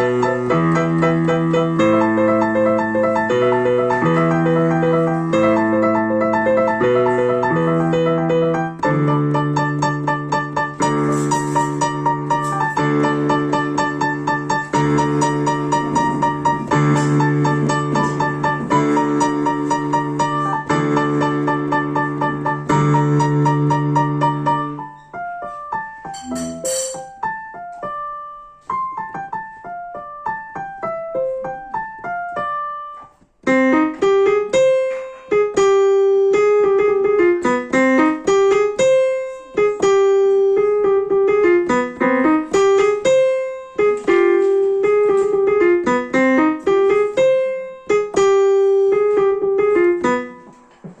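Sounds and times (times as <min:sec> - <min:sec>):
keyboard piano music: 0:00.0 - 0:51.0.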